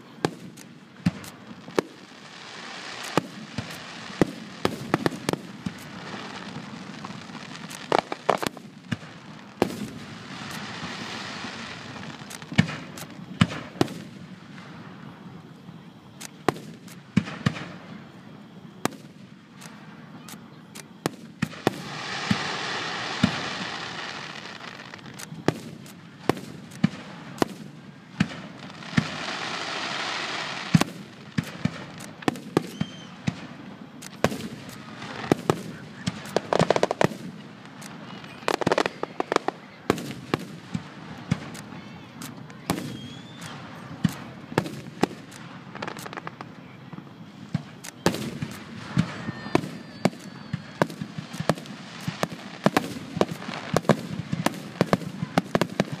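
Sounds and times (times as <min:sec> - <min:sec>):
dense hissing noise: 0:00.0 - 0:18.3, 0:19.0 - 0:56.0
firework shells bursting: 0:28.2 - 0:56.0.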